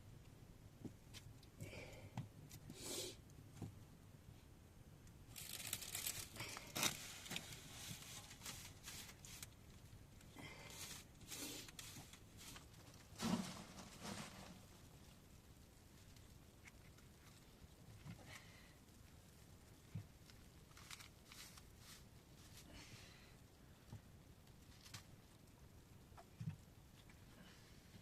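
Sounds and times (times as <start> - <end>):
material rustling and crinkling: 5.3 - 18.6, 19.7 - 22.9, 24.4 - 25.6.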